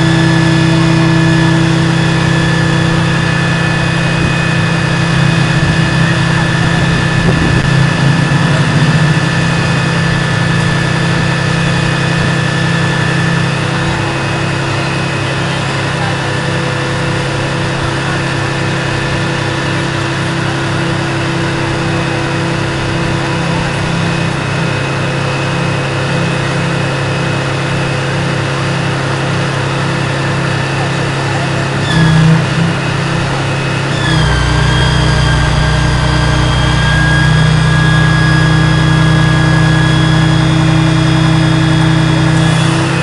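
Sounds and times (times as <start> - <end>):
thin high whine: 0.0 - 28.8
diesel engine idling: 0.0 - 43.0.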